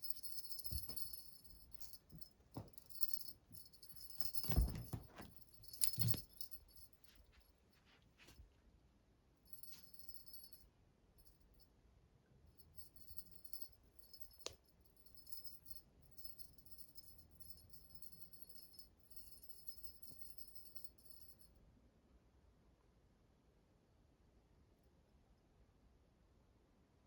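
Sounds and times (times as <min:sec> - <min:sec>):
small bell jingling: 0:00.0 - 0:07.5, 0:09.5 - 0:11.5, 0:12.6 - 0:21.5.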